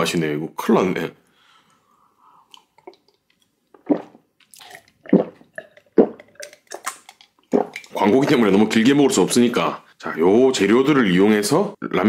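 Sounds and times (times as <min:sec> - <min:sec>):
wet chewing and smacking: 0:02.5 - 0:08.0.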